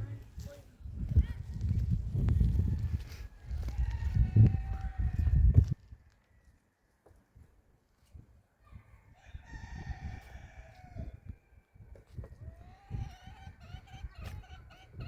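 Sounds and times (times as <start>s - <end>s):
rooster crowing: 2.7s - 5.4s, 9.1s - 11.4s.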